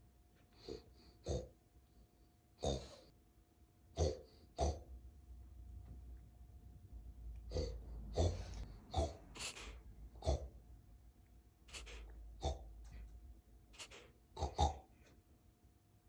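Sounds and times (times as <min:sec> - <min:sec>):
puppy snorting: 0:02.6 - 0:03.1, 0:04.0 - 0:04.8, 0:07.5 - 0:10.5, 0:11.7 - 0:13.1, 0:13.7 - 0:15.1.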